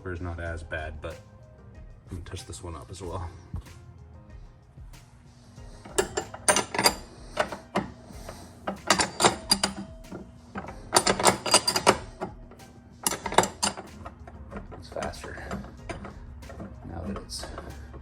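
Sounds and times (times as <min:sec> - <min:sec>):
ratchet wrench clicking: 0:05.8 - 0:18.0.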